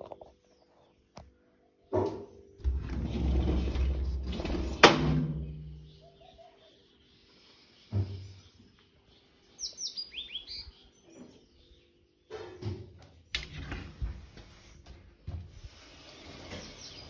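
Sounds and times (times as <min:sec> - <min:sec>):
small bird chirping: 0:05.8 - 0:12.4.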